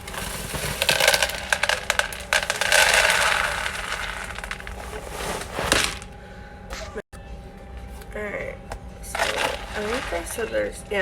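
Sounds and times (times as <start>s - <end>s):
cereal pouring into a bowl: 0.0s - 6.1s, 9.1s - 10.4s.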